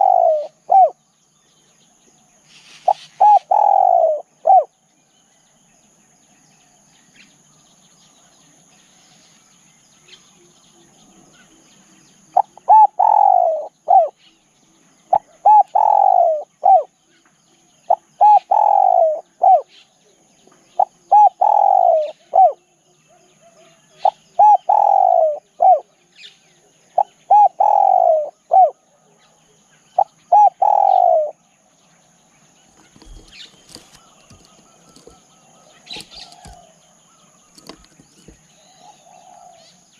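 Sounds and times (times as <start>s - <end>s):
dove cooing: 0.0s - 1.0s, 2.8s - 4.7s, 12.4s - 14.2s, 15.1s - 16.9s, 17.9s - 19.7s, 20.8s - 25.9s, 27.0s - 29.0s, 30.0s - 31.4s, 32.7s - 36.8s, 37.5s - 39.8s.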